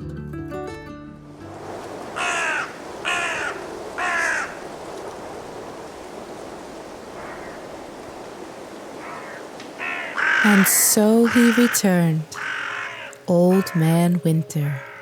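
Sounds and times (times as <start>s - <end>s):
crow cawing: 2.2s - 4.7s, 7.2s - 7.7s, 8.9s - 14.0s, 14.7s - 15.0s.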